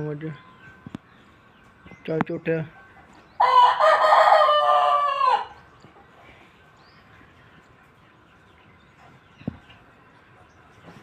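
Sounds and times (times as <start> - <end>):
rooster crowing: 3.4 - 5.6.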